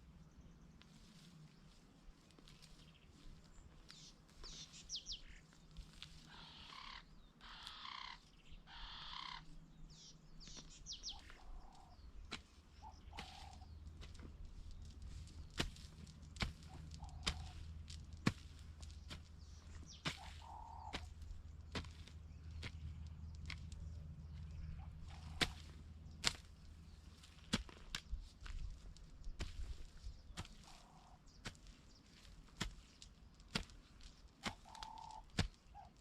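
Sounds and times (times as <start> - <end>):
birds chirping: 0.0 - 36.0
hoe striking soil: 12.2 - 23.8, 24.4 - 36.0.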